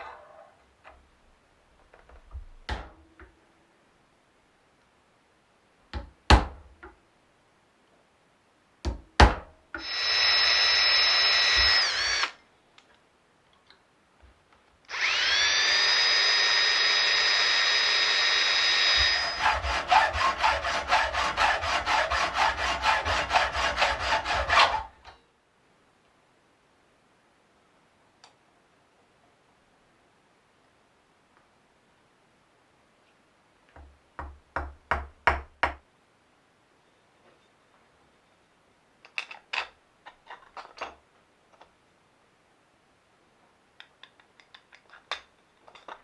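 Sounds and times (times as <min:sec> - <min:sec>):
drill clicks: 0:09.8 - 0:12.4, 0:14.9 - 0:20.4
electric drill running: 0:09.8 - 0:12.4, 0:14.9 - 0:20.9.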